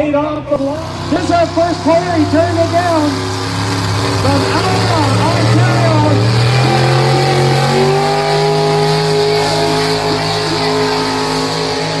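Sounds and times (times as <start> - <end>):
engine running hard under load: 0.3 - 12.0.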